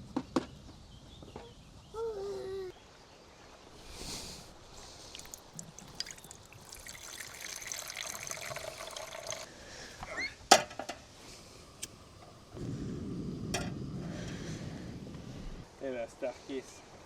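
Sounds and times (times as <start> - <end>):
liquid being poured: 5.1 - 9.5.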